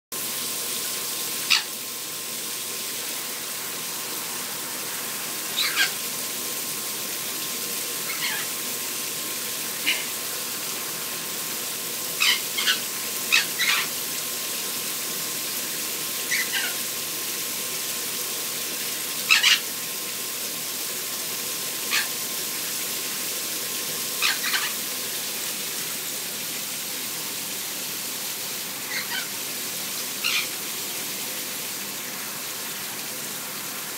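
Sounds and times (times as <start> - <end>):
shower water spraying: 0.2 - 33.9
parrots squawking: 1.4 - 1.8, 5.5 - 6.0, 8.0 - 8.6, 9.8 - 10.2, 12.2 - 14.0, 16.2 - 16.8, 19.2 - 19.7, 21.9 - 22.2, 24.2 - 24.8, 28.8 - 29.4, 30.2 - 30.6.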